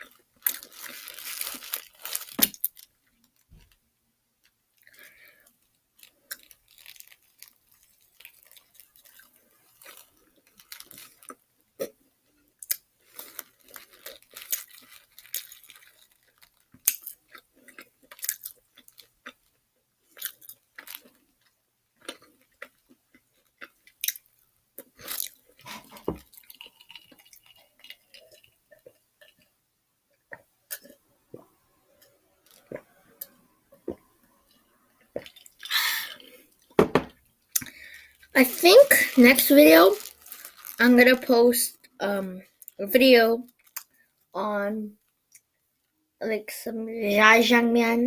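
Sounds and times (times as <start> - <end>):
crunchy chewing: 12.6 - 29.5, 39.9 - 40.8.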